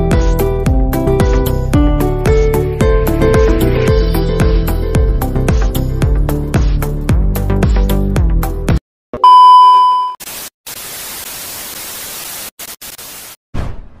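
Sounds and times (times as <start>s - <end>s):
electronic music with steady beat: 0.0s - 8.4s
loud steady electronic beep: 9.2s - 10.2s
hissing tv static: 10.2s - 13.4s.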